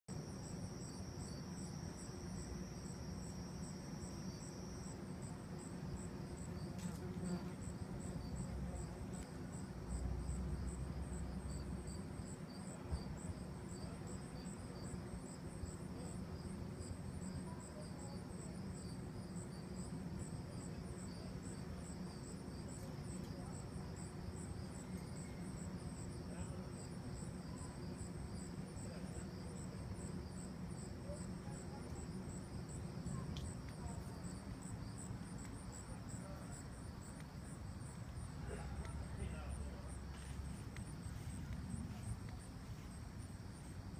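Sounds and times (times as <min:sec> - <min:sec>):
crickets chirping: 0:00.1 - 0:43.9.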